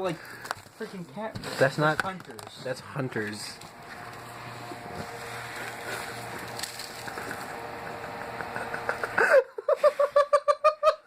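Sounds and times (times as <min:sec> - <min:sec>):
dry catnip rustling and crackling: 0:04.9 - 0:07.6
laughter: 0:07.1 - 0:11.0.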